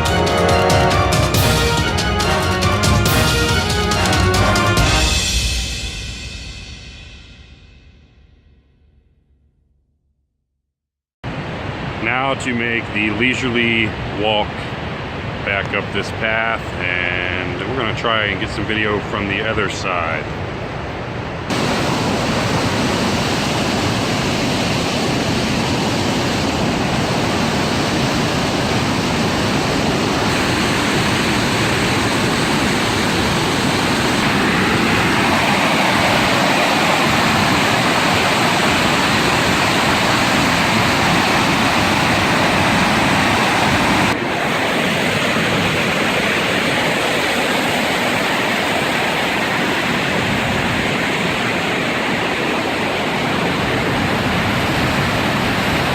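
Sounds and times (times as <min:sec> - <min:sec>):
floodwater pouring over a dam: 0:21.5 - 0:55.9.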